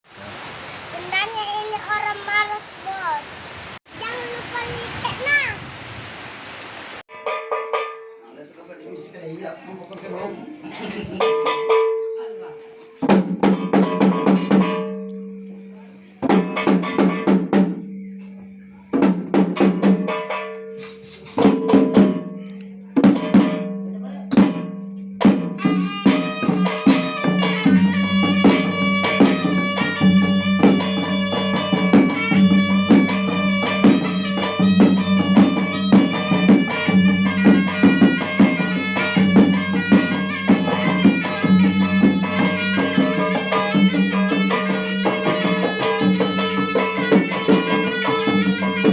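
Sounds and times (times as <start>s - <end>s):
drums beating rhythmic phrases: 7.1s - 9.5s, 10.1s - 15.0s, 16.1s - 48.9s
sustained melodic instrument: 25.6s - 48.9s.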